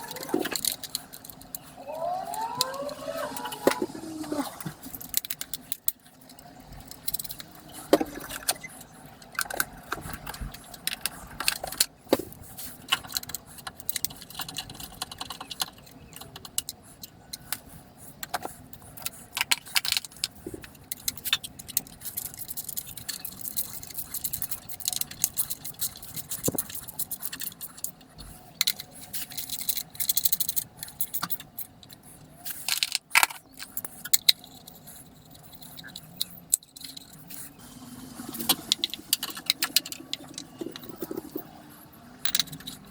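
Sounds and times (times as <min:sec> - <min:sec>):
sharp clicks and clatter: 0:38.2 - 0:42.9
metal tools clinking and rattling: 0:42.2 - 0:42.9.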